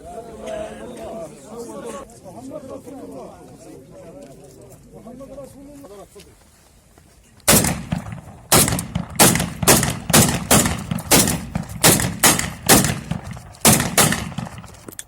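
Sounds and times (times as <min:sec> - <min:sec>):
rifle shots with echo: 0:07.5 - 0:15.0.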